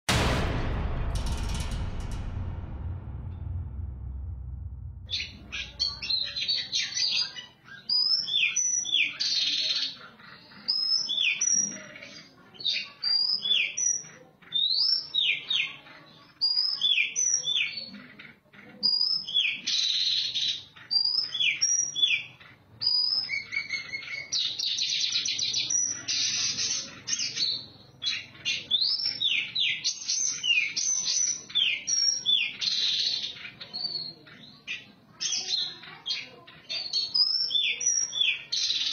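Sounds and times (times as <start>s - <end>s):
bird singing whistled notes: 36.8s - 38.9s.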